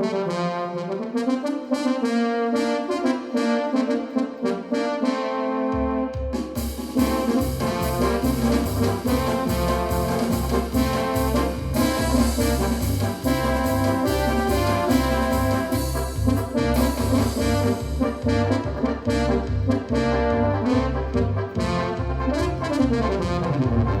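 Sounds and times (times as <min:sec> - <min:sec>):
synthesizer brass chords: 0:00.0 - 0:24.0
pulsing synth bass line: 0:07.4 - 0:24.0.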